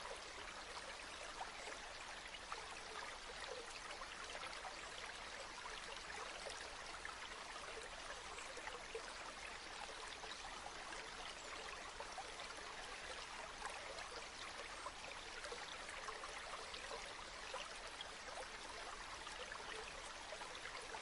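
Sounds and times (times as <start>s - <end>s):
river water flowing: 0.0s - 21.0s.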